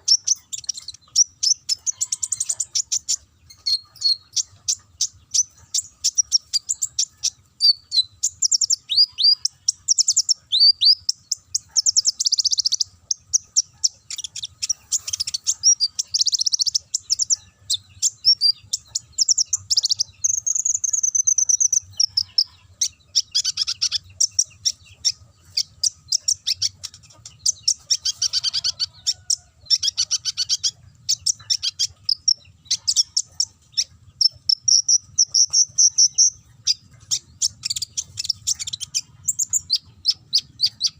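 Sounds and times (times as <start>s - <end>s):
bird singing chirps and trills: 0.0s - 40.9s.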